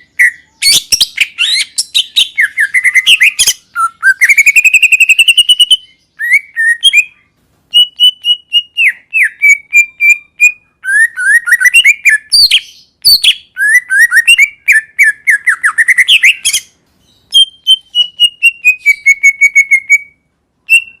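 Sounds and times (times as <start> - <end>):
bird singing rapid chirps: 0.0 - 21.0.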